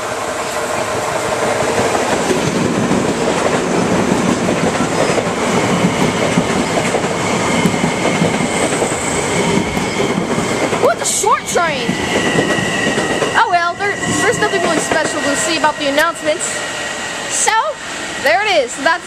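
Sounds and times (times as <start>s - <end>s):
train wheels clattering: 0.8s - 19.0s
steady high tone: 8.9s - 19.0s.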